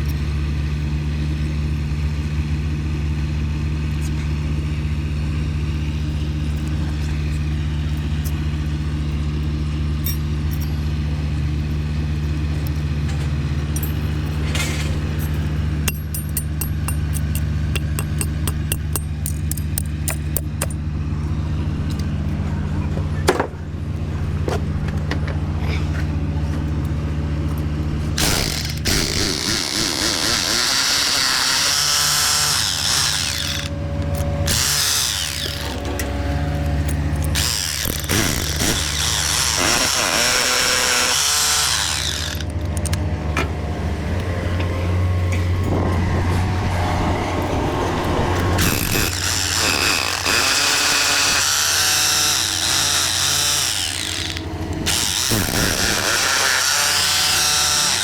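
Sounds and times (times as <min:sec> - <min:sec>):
low engine hum: 0:00.0 - 0:56.1
power tool running: 0:15.8 - 0:21.3, 0:27.8 - 0:43.8, 0:45.4 - 0:58.0.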